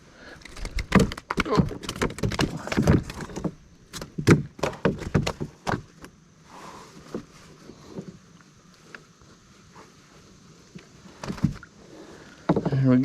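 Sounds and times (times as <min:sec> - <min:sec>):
knocks and thumps in a canoe: 0:00.4 - 0:06.1, 0:11.1 - 0:11.7, 0:12.4 - 0:13.0.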